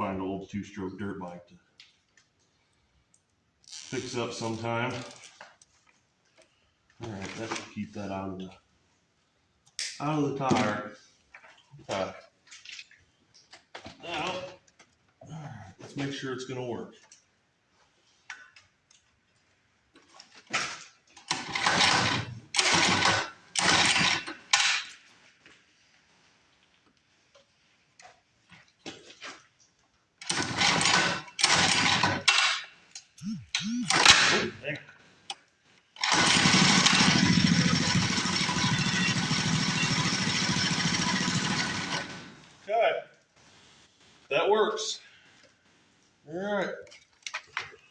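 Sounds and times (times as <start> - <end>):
small engine cranking: 21.3 - 24.6, 30.2 - 32.4, 33.2 - 34.4, 36.0 - 42.5
small engine idling: 36.0 - 42.4.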